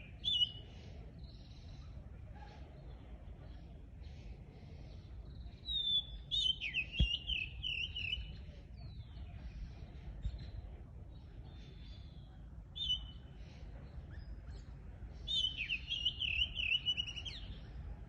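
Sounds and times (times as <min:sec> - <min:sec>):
songbirds chirping: 0:00.0 - 0:18.0
bird twittering close by: 0:05.0 - 0:09.6, 0:14.0 - 0:17.7.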